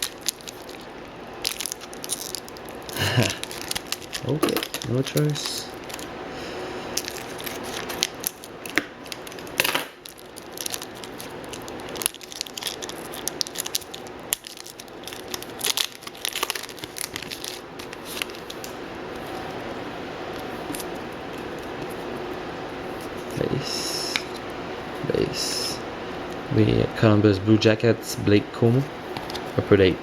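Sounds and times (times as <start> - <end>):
wrapper tearing and crinkling: 0.0 - 6.1, 7.0 - 18.8.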